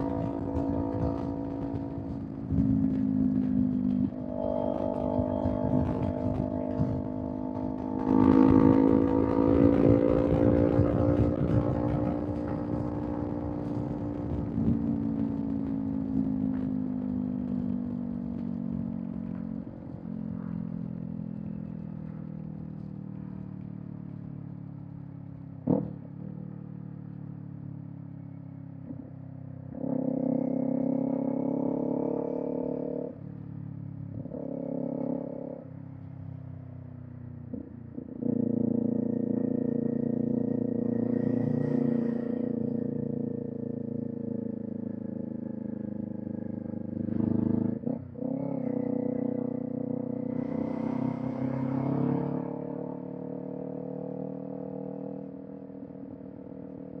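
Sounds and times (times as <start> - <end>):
motorcycle engine: 0.0 - 57.0.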